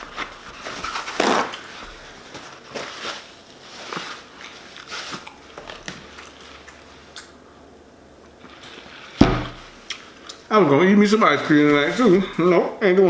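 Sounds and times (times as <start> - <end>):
chewing with crunches: 4.2 - 7.5.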